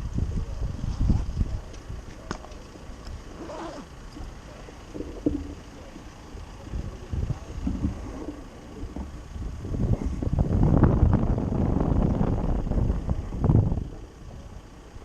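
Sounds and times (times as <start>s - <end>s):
faint street sounds: 0.0s - 10.6s
wind buffeting microphone: 0.0s - 14.8s.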